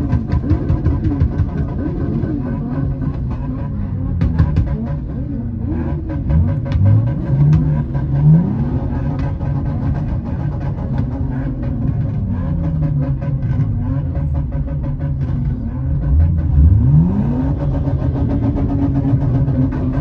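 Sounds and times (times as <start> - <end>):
car engines in traffic: 0.0 - 20.0
engine revving: 0.0 - 20.0.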